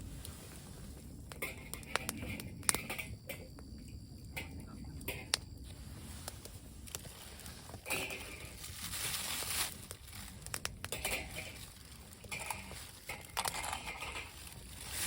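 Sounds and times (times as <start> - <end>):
sharp clicks and light knocks: 1.3 - 5.5, 9.9 - 14.4
rustling and crinkling: 4.4 - 15.0.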